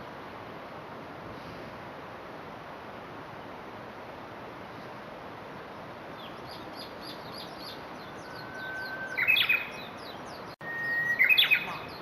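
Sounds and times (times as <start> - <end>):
bird singing whistled song: 6.2 - 12.0
faint high chirps: 6.2 - 12.0.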